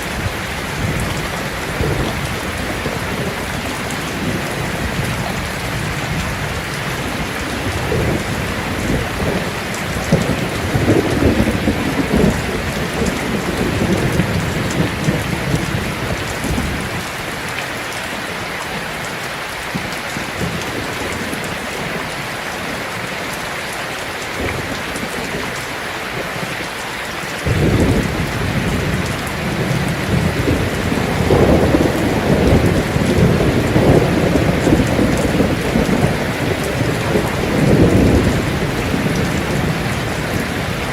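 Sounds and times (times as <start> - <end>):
rolling thunder: 0.0 - 17.0, 27.4 - 40.9
heavy rain on a tin roof: 0.0 - 40.9.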